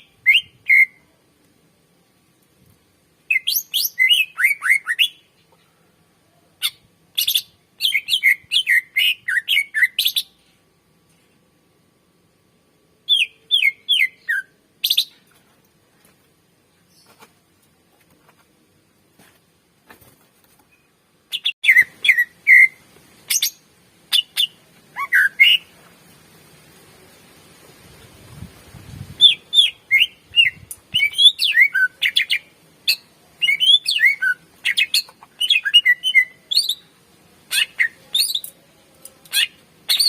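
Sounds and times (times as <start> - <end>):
bird singing whistled chattering notes: 37.5 - 38.6, 39.3 - 40.0.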